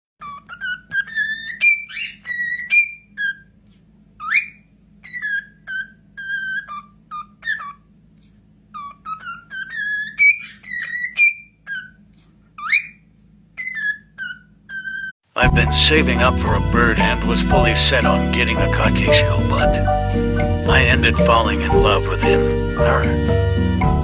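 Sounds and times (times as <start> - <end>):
parrot whistling a tune: 0.2 - 3.5, 4.2 - 7.8, 8.8 - 12.0, 12.6 - 13.0, 13.6 - 15.1.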